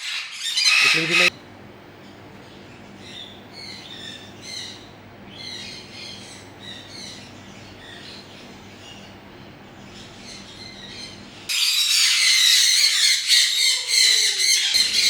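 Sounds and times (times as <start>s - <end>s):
caged birds chirping: 0.0s - 15.0s
steady low hum: 0.9s - 11.5s.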